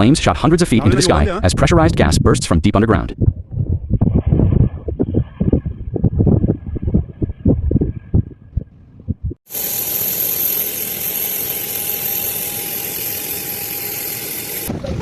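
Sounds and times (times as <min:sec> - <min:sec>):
gas jet hissing rush: 0:09.5 - 0:14.7.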